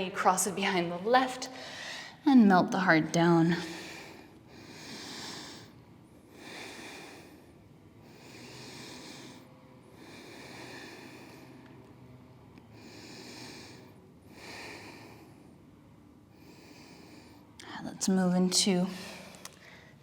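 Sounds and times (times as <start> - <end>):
person breathing slowly: 3.6 - 17.6.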